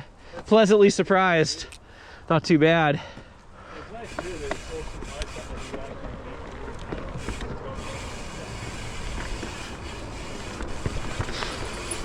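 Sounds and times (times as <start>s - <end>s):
bike tyres rolling on dirt: 4.0s - 12.0s
bike rattling over bumps: 4.1s - 12.0s.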